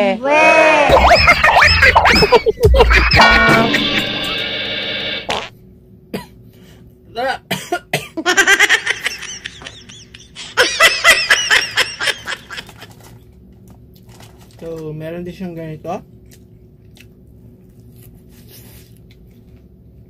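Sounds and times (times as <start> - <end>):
man coughing: 6.1 - 6.4, 7.5 - 8.2.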